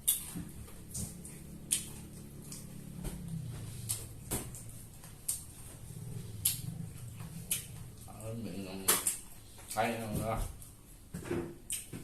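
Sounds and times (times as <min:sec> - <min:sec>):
chewing crunchy cartilage: 0:00.0 - 0:09.8.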